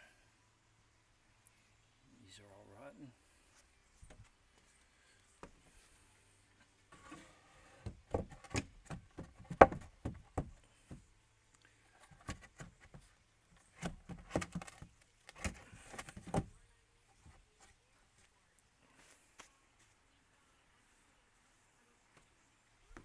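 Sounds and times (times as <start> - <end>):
knocks and clunks: 7.8 - 11.1, 13.7 - 16.6.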